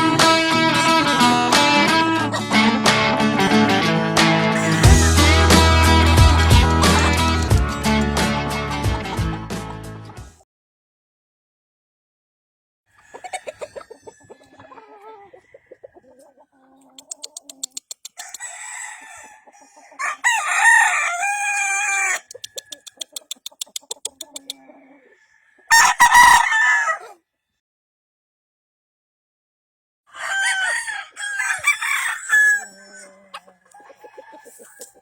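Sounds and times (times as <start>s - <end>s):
roosters crowing: 4.6s - 8.0s, 12.9s - 16.7s, 18.2s - 23.1s, 24.5s - 27.2s, 30.1s - 35.0s
rapid clucking: 4.6s - 8.2s, 13.0s - 18.5s, 22.2s - 24.6s.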